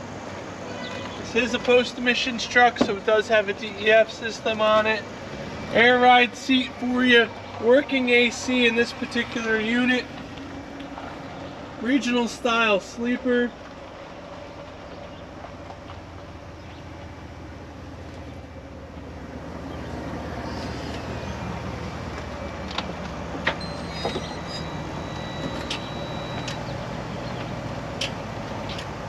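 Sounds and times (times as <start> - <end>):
diesel truck engine idling: 0.0 - 29.0
brief high tone: 23.6 - 26.6.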